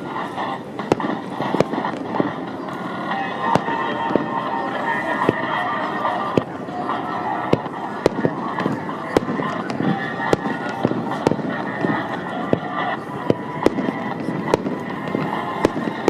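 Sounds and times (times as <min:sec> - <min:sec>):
firework shells bursting: 0:00.0 - 0:04.4
fireworks crackle and rumble: 0:00.0 - 0:16.0.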